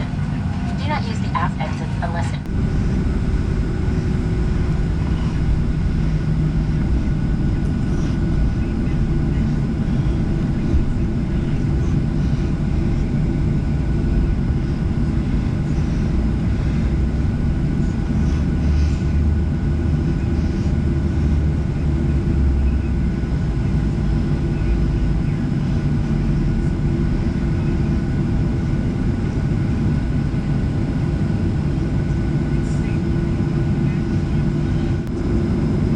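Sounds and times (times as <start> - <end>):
aircraft cabin low rumble: 0.0 - 35.9.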